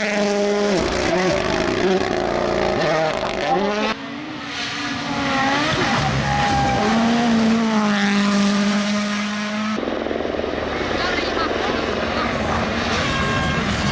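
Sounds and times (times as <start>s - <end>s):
rally car engines revving: 0.0s - 13.9s.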